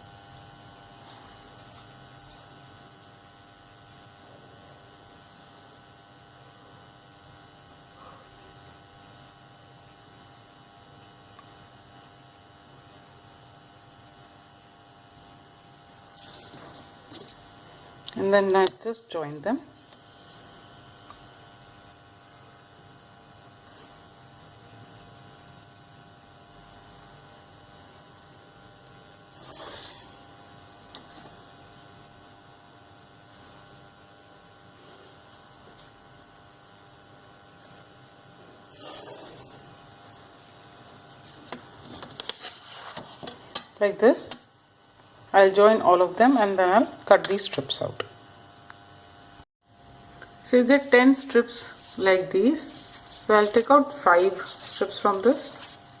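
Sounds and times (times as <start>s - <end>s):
faint electrical hum: 0.0s - 56.0s
paper rustling: 41.2s - 43.4s, 52.6s - 55.8s.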